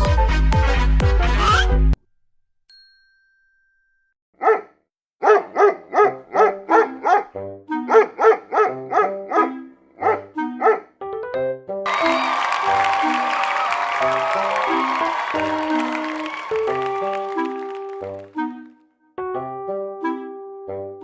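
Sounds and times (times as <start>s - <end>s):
dog barking: 4.4s - 10.9s
light background music: 6.4s - 10.8s.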